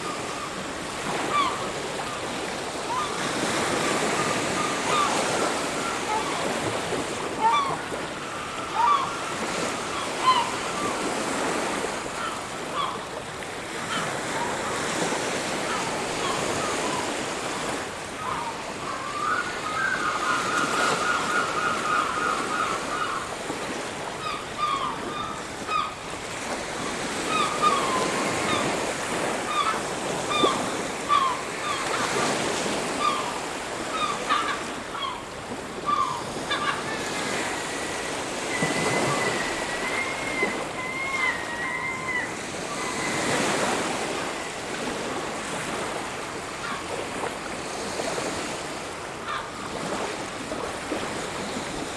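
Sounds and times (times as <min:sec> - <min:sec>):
waves washing on a beach: 0:00.0 - 0:51.9
bird trilling: 0:07.4 - 0:11.2, 0:35.9 - 0:43.6
bird wavering whistle: 0:07.4 - 0:11.3, 0:18.2 - 0:23.2, 0:35.9 - 0:44.1.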